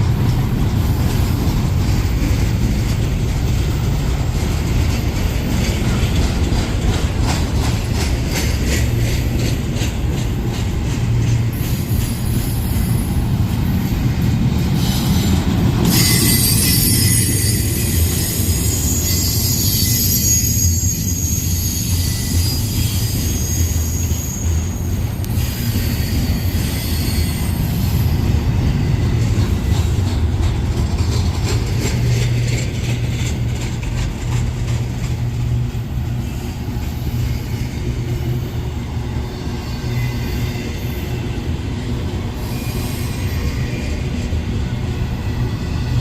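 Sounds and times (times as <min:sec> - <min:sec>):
wheels clicking over rail joints: 0:00.0 - 0:19.5, 0:25.1 - 0:38.4
train cars rumbling past: 0:00.0 - 0:46.0
high-pitched wheel squeal: 0:14.8 - 0:28.2.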